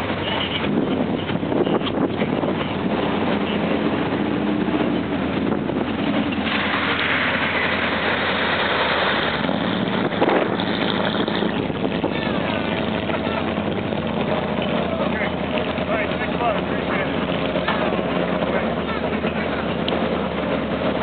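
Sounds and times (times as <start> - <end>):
wind on microphone: 0.0 - 15.8
vehicle engine running: 0.0 - 21.0
rush of hiss: 6.4 - 9.5.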